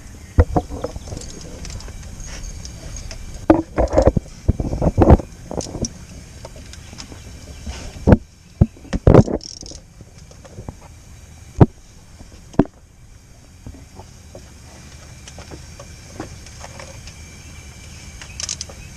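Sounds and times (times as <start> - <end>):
metal tools clunking: 0.4 - 4.2.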